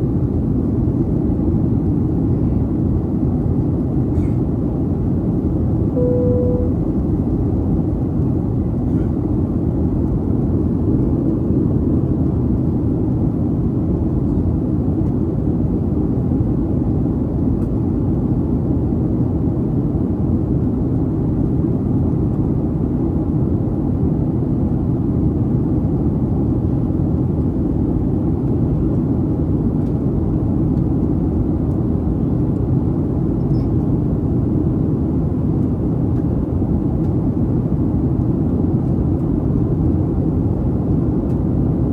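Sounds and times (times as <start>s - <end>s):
airplane cabin rumble: 0.2s - 12.4s.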